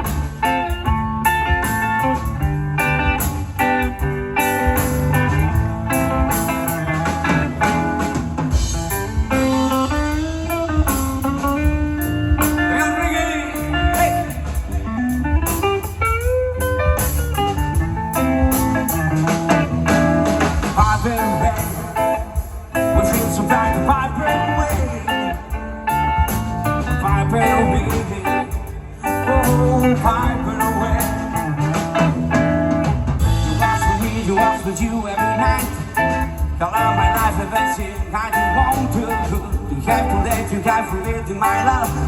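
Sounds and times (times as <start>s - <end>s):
reggae band playing live: 0.0s - 42.0s
sliding guitar lead: 0.0s - 42.0s.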